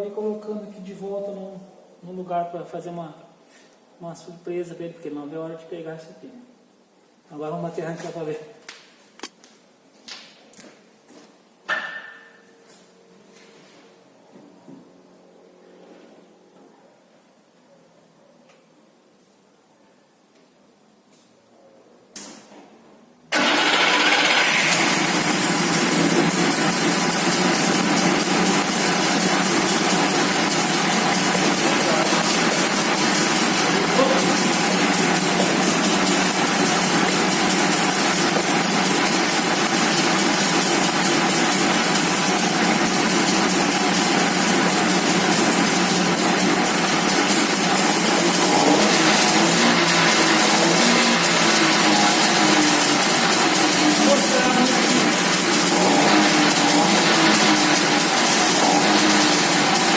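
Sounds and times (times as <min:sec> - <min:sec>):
two-stroke engine running: 0:23.3 - 0:59.9.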